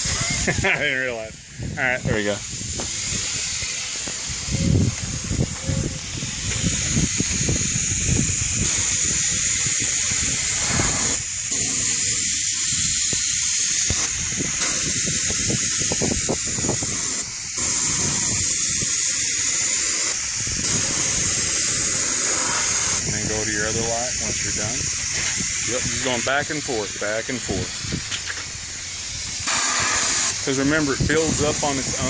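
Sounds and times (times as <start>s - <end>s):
spray gun hissing: 0.0s - 32.0s.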